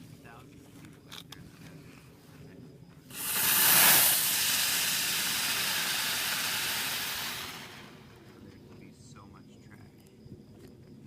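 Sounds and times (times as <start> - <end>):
firework hissing: 3.1 - 8.3.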